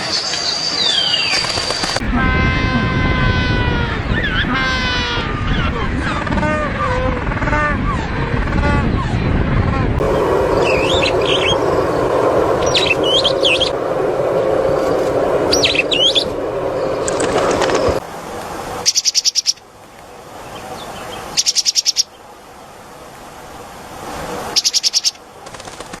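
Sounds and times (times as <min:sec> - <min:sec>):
songbird chirping and trilling: 0:00.0 - 0:18.0, 0:18.8 - 0:22.3, 0:24.6 - 0:25.2
background hiss: 0:10.0 - 0:25.9.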